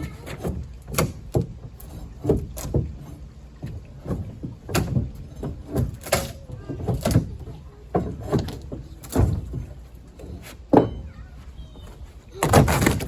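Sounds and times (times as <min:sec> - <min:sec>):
plywood being pried up: 0:00.0 - 0:11.2, 0:12.3 - 0:13.0
wood cracking and knocking: 0:00.0 - 0:11.2, 0:12.3 - 0:13.0
wood tearing: 0:12.3 - 0:13.0.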